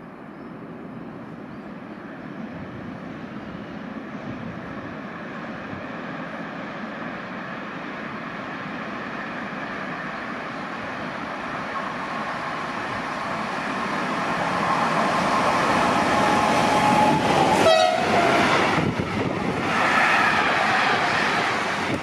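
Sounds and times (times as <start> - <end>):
train passing: 0.0 - 22.0
train horn: 16.6 - 18.6.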